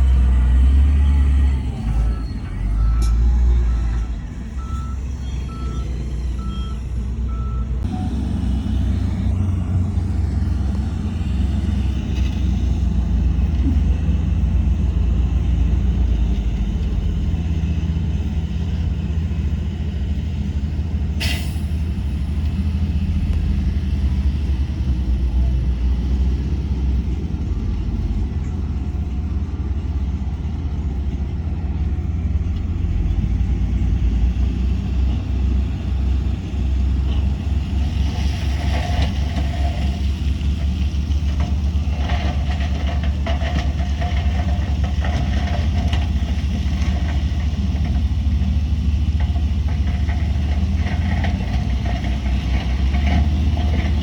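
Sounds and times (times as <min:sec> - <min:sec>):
diesel machinery running: 0:00.0 - 0:54.0
reversing alarm beeping: 0:01.0 - 0:08.9.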